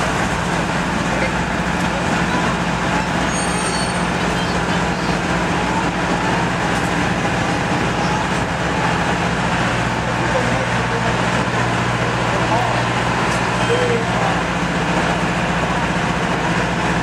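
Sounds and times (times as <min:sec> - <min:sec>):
diesel engine drone: 0:00.0 - 0:17.0
train wheels rumbling on track: 0:00.0 - 0:17.0
faint high squeal: 0:03.2 - 0:05.1.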